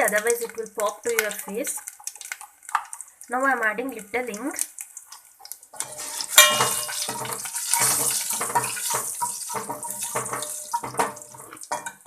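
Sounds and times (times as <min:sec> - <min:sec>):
spices sizzling in hot oil: 0:00.0 - 0:12.0
metal spoon knocking on pan: 0:05.8 - 0:12.0.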